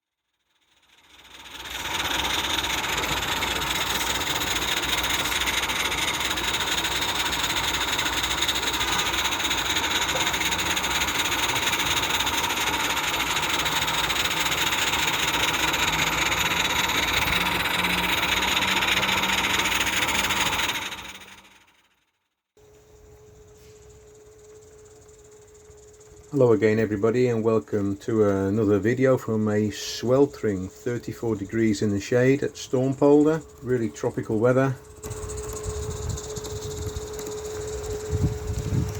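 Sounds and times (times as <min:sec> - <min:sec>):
steam locomotive exhaust hissing: 0:01.0 - 0:21.5.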